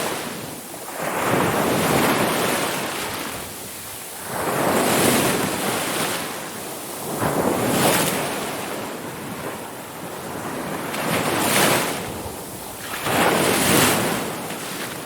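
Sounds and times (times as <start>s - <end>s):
ocean waves breaking on shore: 0.0s - 15.0s.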